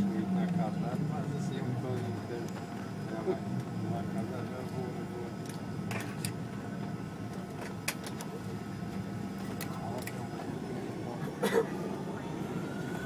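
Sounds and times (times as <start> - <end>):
airliner cabin hum: 0.0 - 13.0.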